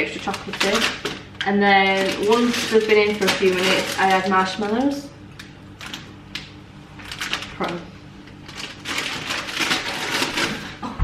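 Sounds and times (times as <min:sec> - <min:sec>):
utensils scraping mixing bowl: 0:00.2 - 0:05.0.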